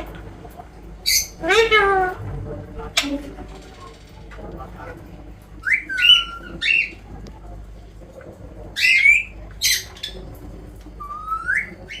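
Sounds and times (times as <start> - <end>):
parrot squawking: 1.0 - 2.3, 5.6 - 7.0, 8.8 - 10.2, 11.0 - 12.0.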